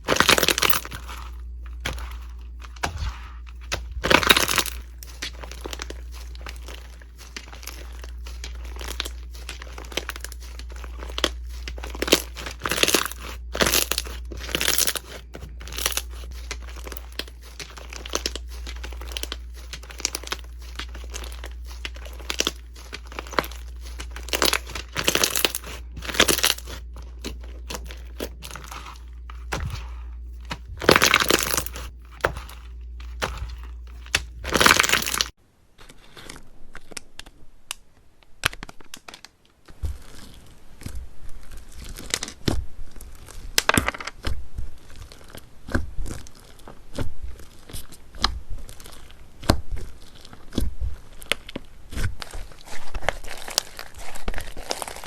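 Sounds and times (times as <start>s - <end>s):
low hum: 0.0s - 35.3s
slime crackling and crinkling: 0.0s - 55.0s.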